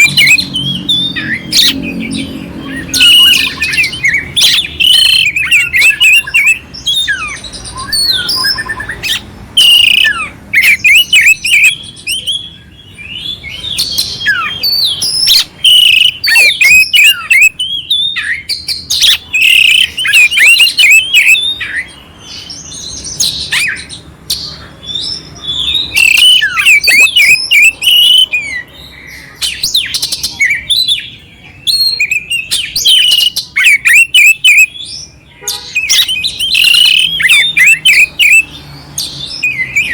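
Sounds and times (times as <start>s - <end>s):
bird singing loudly: 0.0s - 39.9s.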